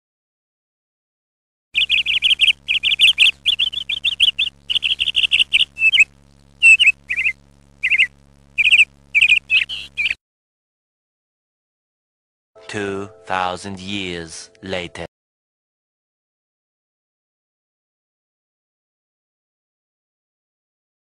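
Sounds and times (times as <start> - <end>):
birds chirping: 1.8 - 10.2
faint hum: 1.8 - 10.2.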